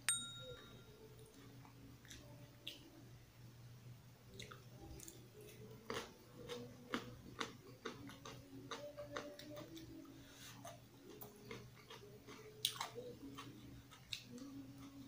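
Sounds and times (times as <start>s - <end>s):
faint low hum: 0.0s - 15.0s
chewing and wet mouth sounds: 4.3s - 15.0s.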